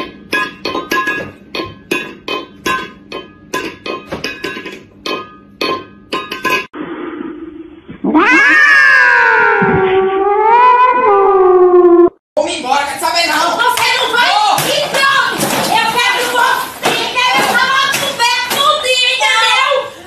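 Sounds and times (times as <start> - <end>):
metal food bowl clanking: 0.0 - 6.7, 13.8 - 18.9
cat yowling: 8.0 - 12.0.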